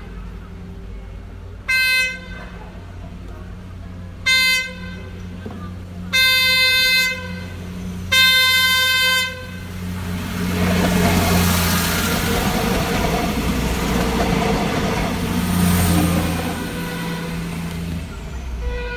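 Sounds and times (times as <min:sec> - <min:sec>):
diesel engines humming: 0:00.0 - 0:18.9
train horn blasts: 0:01.6 - 0:02.6, 0:04.2 - 0:05.3, 0:06.1 - 0:09.8, 0:16.0 - 0:17.9, 0:18.5 - 0:18.9
wheels running on rails: 0:08.8 - 0:18.7.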